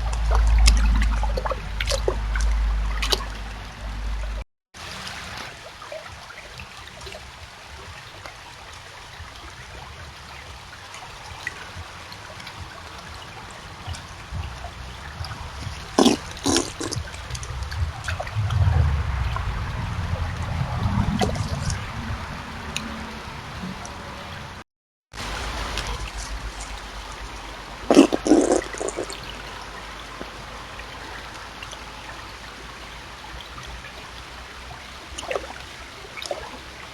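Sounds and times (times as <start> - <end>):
sharp wet smacks: 0.0 - 3.5, 13.9 - 18.3, 21.2 - 21.8, 25.8 - 29.3
low rumbling: 0.0 - 4.4, 12.5 - 24.6, 25.2 - 31.0
wet clicks and drips: 0.0 - 4.4, 9.2 - 19.5, 20.2 - 21.9, 25.4 - 31.8, 35.1 - 36.7
water trickling: 0.0 - 24.6, 25.2 - 36.9.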